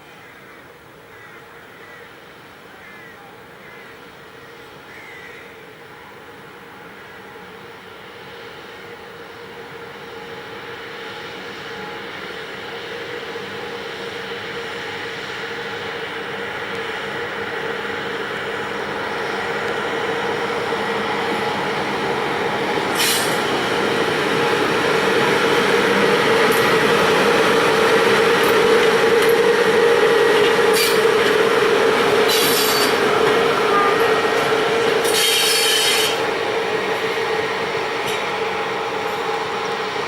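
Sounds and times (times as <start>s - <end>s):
freight train rumbling past: 0.0s - 40.0s
wheels squealing on rails: 1.4s - 40.0s.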